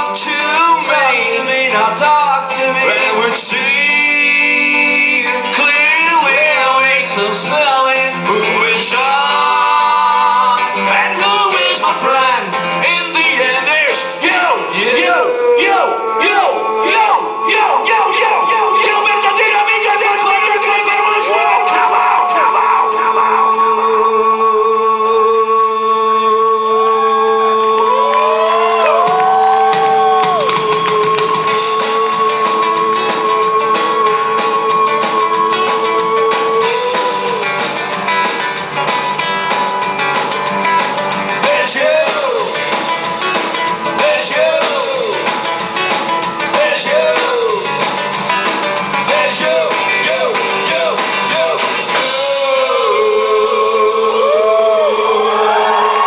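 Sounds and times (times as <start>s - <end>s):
vocal or guitar phrases: 0.0s - 38.1s, 41.3s - 45.5s, 46.4s - 56.0s
live rock band playing: 0.0s - 56.0s.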